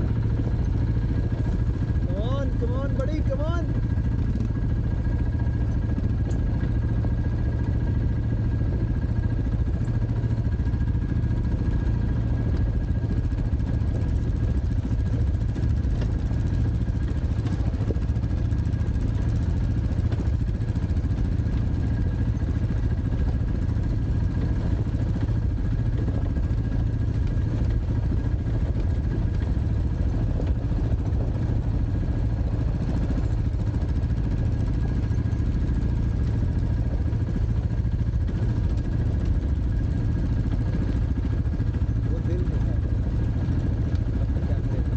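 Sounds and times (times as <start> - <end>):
dirt bike engine running: 0.0 - 44.9.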